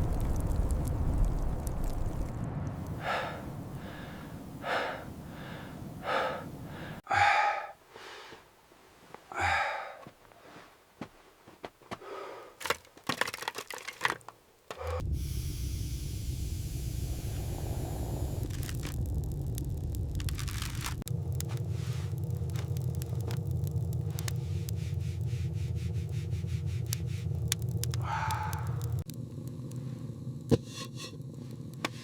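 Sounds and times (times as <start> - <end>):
sharp cracks and snaps: 0.0 - 4.9, 12.6 - 15.0, 18.4 - 30.6
low steady rumble: 0.0 - 7.0, 14.9 - 31.8
person breathing heavily and gasping: 2.9 - 8.5, 9.2 - 10.7, 11.9 - 12.8, 14.7 - 15.0, 28.0 - 29.0.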